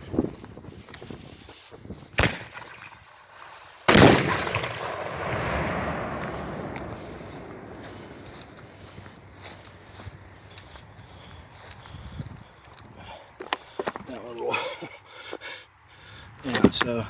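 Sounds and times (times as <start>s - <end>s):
sharp crack: 2.2s - 9.3s
firecracker exploding: 3.8s - 8.6s.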